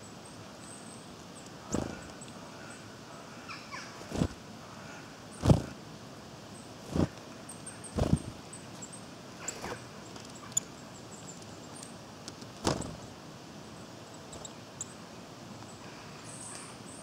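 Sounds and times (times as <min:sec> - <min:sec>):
steady background hiss: 0:00.0 - 0:17.0
high thin bird calls: 0:01.6 - 0:02.8.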